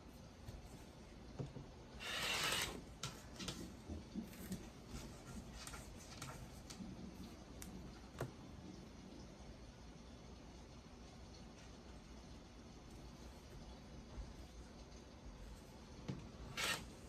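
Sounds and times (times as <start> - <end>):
fabric being cut: 2.0 - 2.8, 16.5 - 16.9.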